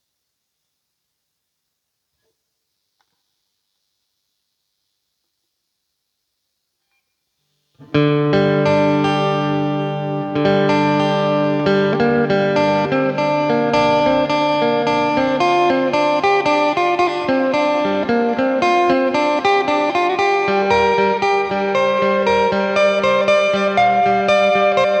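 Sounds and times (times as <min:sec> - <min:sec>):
plucked electric lute melody: 0:07.8 - 0:25.0.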